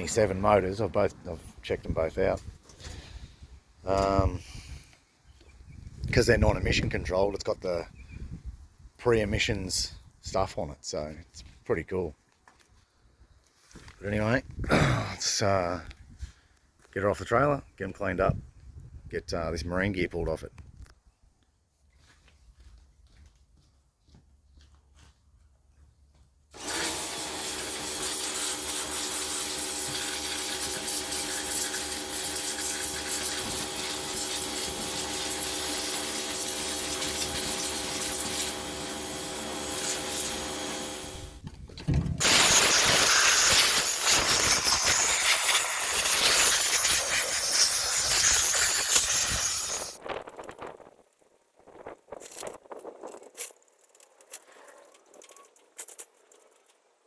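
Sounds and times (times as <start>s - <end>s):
loud even hissing: 26.6s - 41.4s, 42.2s - 50.0s
power tool humming: 26.6s - 41.4s, 42.2s - 50.0s.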